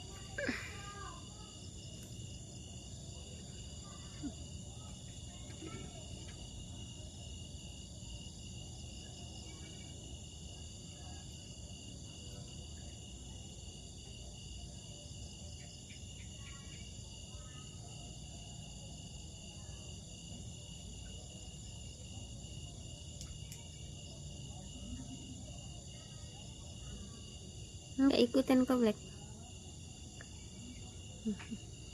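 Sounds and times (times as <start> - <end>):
insects trilling: 0.0 - 31.9.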